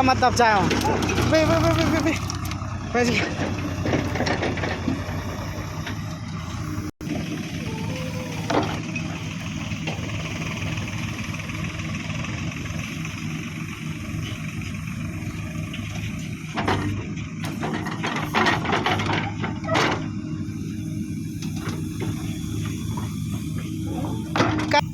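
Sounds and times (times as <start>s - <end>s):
diesel engine running: 0.0s - 24.9s
clattering knocks: 3.2s - 6.1s.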